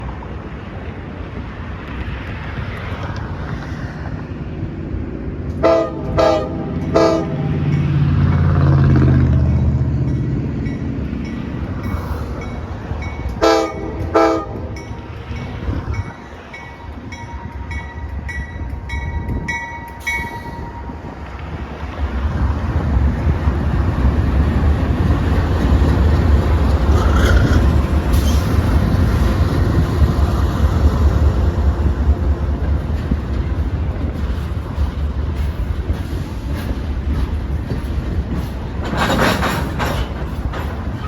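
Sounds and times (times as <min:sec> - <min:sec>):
locomotive air horn blasts: 0:05.6 - 0:07.6, 0:13.4 - 0:15.1.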